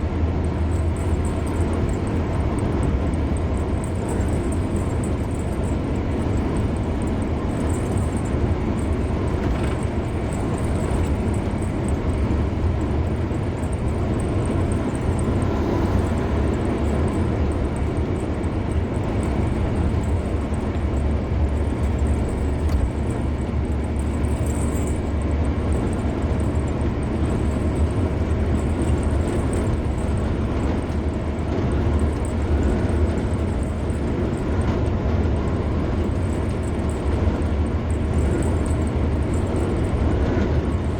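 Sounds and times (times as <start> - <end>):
car running: 0.0 - 40.9
tyres rumbling on road: 0.0 - 40.9.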